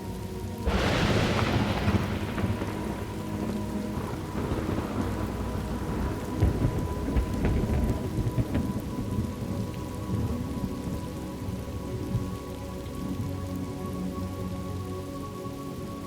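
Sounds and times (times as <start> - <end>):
rain falling: 0.0 - 16.0
sharp thunder cracks: 0.6 - 9.1
thunder rumbling: 0.6 - 12.5.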